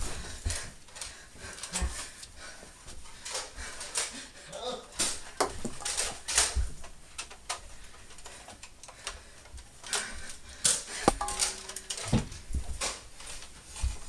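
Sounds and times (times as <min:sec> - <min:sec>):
sharp clicks and knocks: 0:11.0 - 0:12.2.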